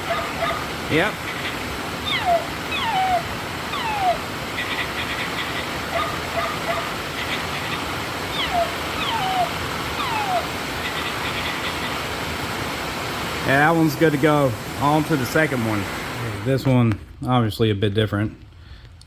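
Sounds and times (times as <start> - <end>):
rain on a metal roof: 0.0 - 19.0
toy puppy electronic yips: 1.3 - 11.9.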